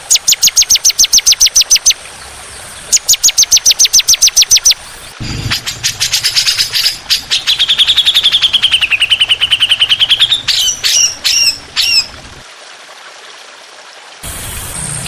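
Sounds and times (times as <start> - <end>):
songbird trilling: 0.1 - 4.8, 5.4 - 12.1.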